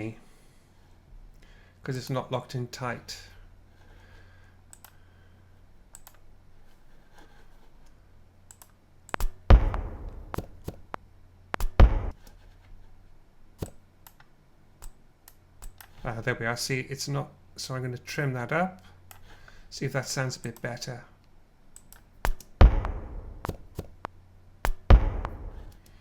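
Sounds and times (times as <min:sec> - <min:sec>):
computer mouse clicks: 0:04.7 - 0:05.0, 0:05.9 - 0:06.2, 0:07.8 - 0:09.4, 0:13.6 - 0:16.0, 0:21.8 - 0:22.5
low hum: 0:09.4 - 0:12.2, 0:22.6 - 0:25.8.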